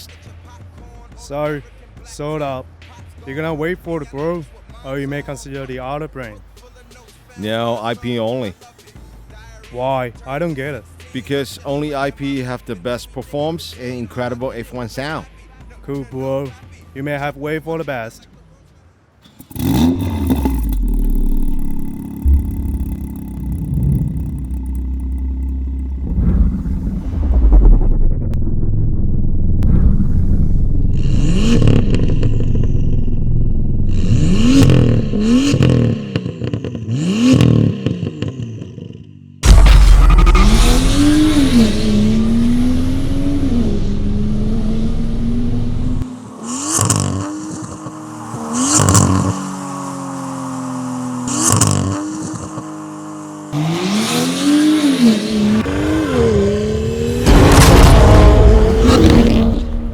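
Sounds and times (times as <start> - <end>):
exhaust cracks: 19.2 - 38.7, 39.4 - 59.9
car engine revving: 19.2 - 38.8, 39.4 - 59.9.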